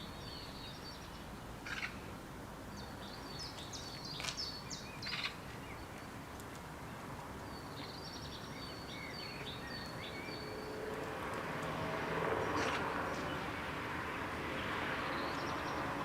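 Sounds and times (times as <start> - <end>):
songbird chirping: 0.0 - 2.1, 2.7 - 16.0
outdoor background noise: 0.0 - 16.0
passing vehicle: 10.0 - 16.0.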